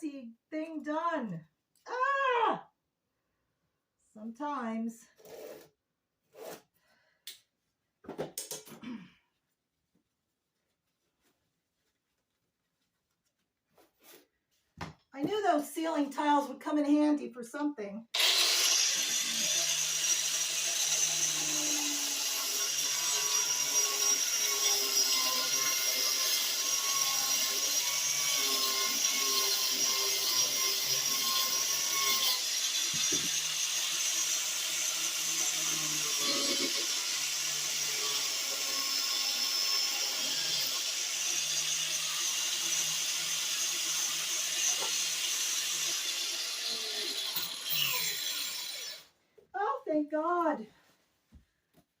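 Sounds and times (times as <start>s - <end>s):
power tool whirring: 18.2s - 49.1s.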